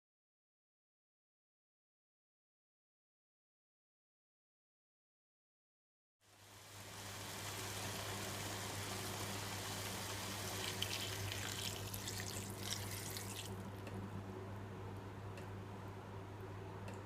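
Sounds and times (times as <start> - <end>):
tap water splashing: 10.6 - 13.6.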